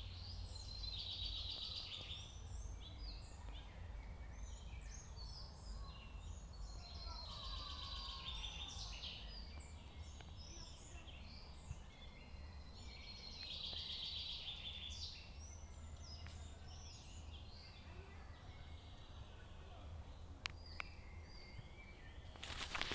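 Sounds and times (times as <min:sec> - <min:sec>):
songbirds singing and chirping: 0:00.0 - 0:22.9.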